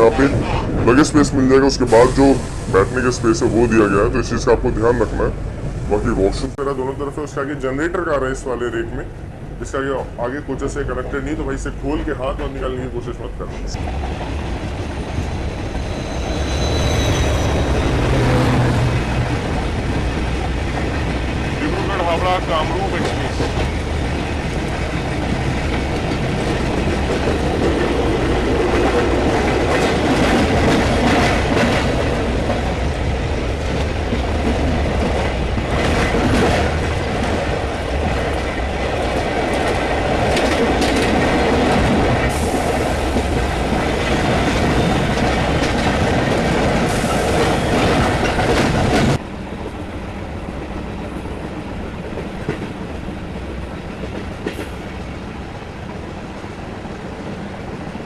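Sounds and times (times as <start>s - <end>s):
train wheels clattering on rails: 18.9s - 49.8s, 50.4s - 58.0s.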